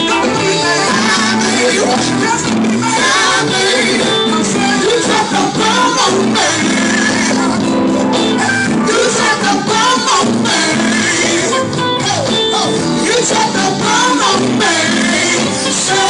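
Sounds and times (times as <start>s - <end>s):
live band with guitar: 0.0s - 16.0s
voices singing worship music: 0.0s - 16.0s.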